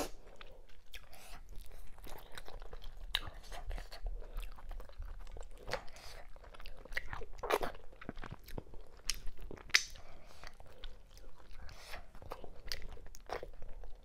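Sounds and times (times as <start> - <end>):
wet chewing and smacking: 0.0 - 14.0.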